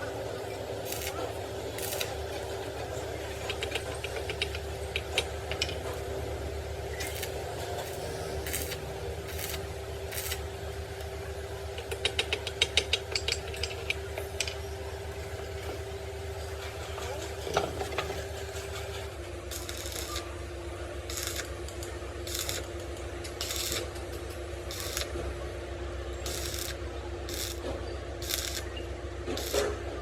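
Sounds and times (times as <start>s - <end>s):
machine hum: 0.0s - 30.0s
small metallic clicks and rattles: 3.3s - 6.0s, 11.7s - 14.6s.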